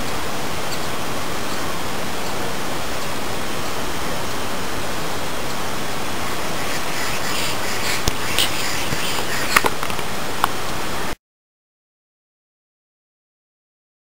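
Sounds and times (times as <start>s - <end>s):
steady rushing hiss: 0.0s - 11.2s.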